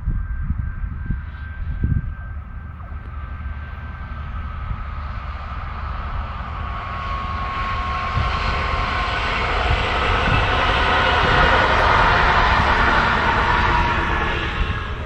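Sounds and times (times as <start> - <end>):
faint steady whine: 0.0 - 15.0
train wheels rushing on rails: 5.6 - 15.0.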